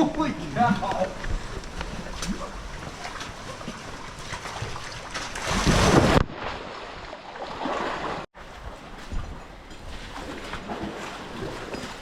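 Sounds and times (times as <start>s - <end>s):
wind on microphone: 0.0s - 6.3s
rushing splashing water: 0.0s - 8.8s.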